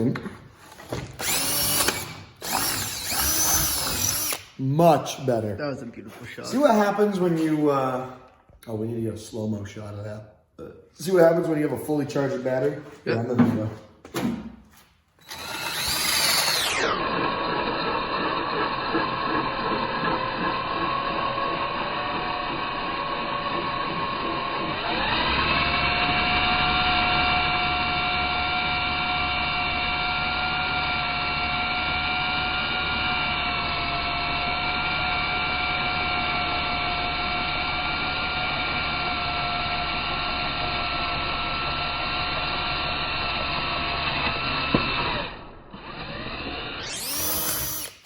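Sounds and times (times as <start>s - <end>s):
cordless drill drilling: 0.6s - 4.6s, 15.2s - 48.0s.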